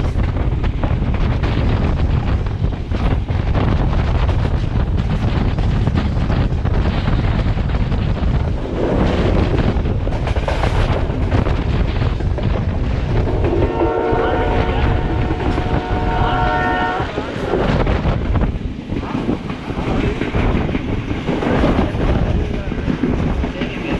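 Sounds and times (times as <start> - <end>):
train wheel and track noise: 0.0 - 23.9
wind buffeting microphone: 0.0 - 23.9.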